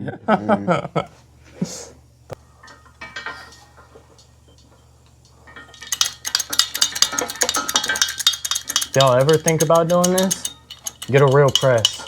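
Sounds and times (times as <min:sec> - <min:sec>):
metal tools clinking: 0:02.4 - 0:12.0.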